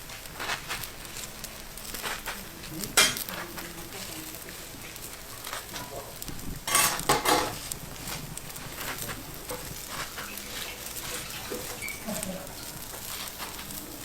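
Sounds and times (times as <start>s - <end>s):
food sizzling on pan: 0.0s - 14.0s
metal utensils scraping pan: 2.0s - 3.5s, 6.6s - 13.7s.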